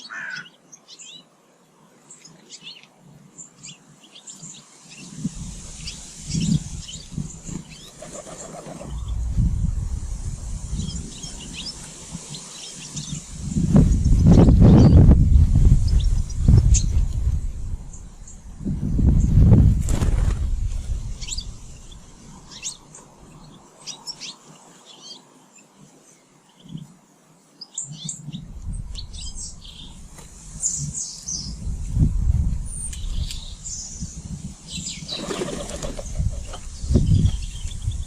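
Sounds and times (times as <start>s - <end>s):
birds chirping: 0.0s - 1.4s, 2.0s - 32.0s
wings flapping: 7.2s - 9.2s, 19.3s - 22.8s, 35.1s - 36.7s.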